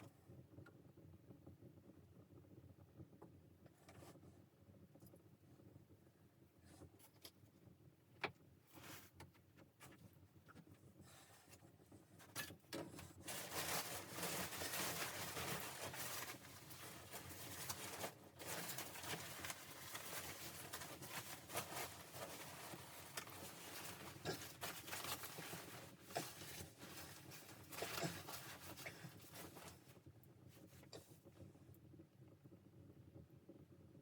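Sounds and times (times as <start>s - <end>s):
close rustling: 12.2s - 30.0s.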